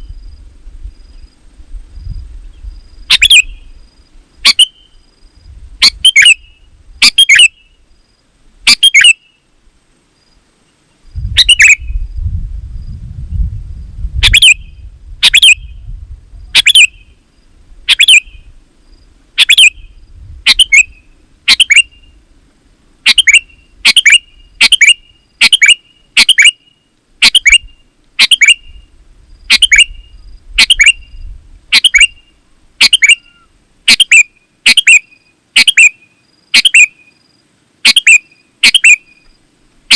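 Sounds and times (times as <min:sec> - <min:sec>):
bird chirping calls: 0:02.4 - 0:03.8, 0:04.4 - 0:05.1, 0:05.8 - 0:07.8, 0:08.6 - 0:09.5, 0:10.7 - 0:12.1, 0:14.2 - 0:15.9, 0:16.5 - 0:17.2, 0:17.8 - 0:18.6, 0:19.4 - 0:22.2, 0:23.0 - 0:37.2, 0:37.8 - 0:39.4
low rumble: 0:11.1 - 0:16.6.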